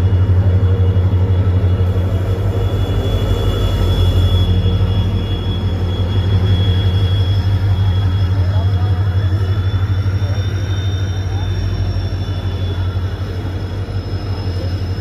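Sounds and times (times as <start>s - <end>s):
diesel locomotive engine rumbling: 0.0s - 15.0s
high whine: 0.0s - 15.0s.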